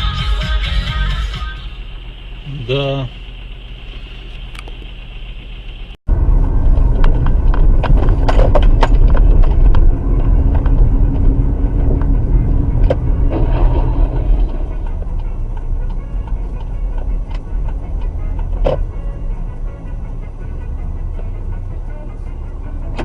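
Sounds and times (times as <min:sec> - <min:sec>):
car engine and road noise: 0:00.0 - 0:23.0
sharp knocks and rattles: 0:06.7 - 0:18.9.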